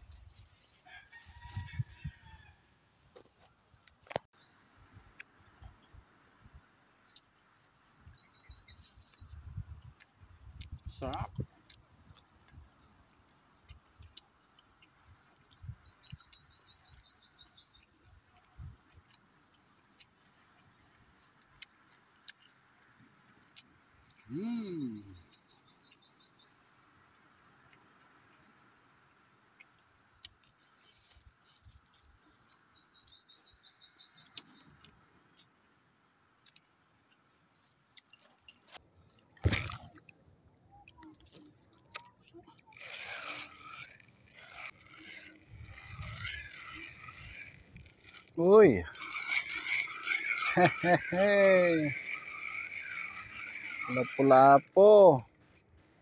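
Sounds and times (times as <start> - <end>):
small birds chirping: 3.9 - 39.2, 40.6 - 55.9
rapid high bird trill: 48.1 - 55.1.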